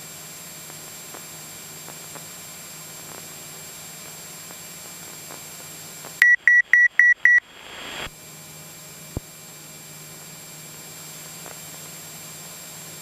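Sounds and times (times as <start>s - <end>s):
aircraft engine drone in cabin: 0.0s - 13.0s
high electronic beeps: 6.2s - 8.1s.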